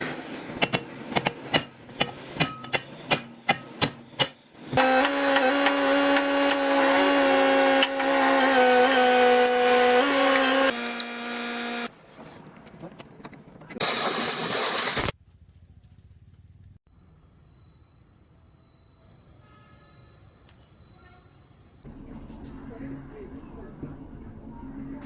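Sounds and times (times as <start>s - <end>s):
power tool humming: 4.6s - 11.9s.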